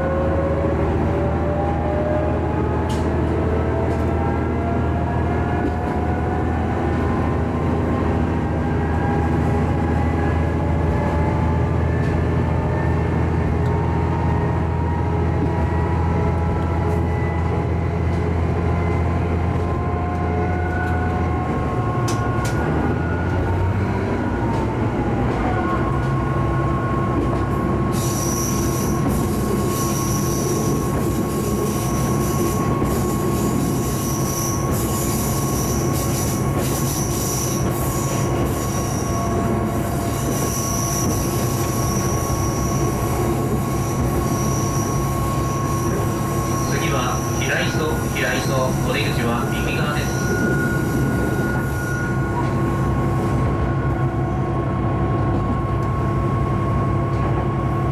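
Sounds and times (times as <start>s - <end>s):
diesel railcar engine drone: 0.0s - 57.9s
high-pitched wheel squeal: 28.0s - 31.0s, 31.6s - 48.2s, 50.0s - 53.0s.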